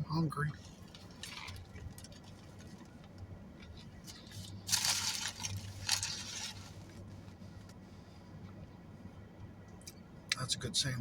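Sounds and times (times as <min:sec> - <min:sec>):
biting and chewing a sandwich: 0:03.6 - 0:06.8.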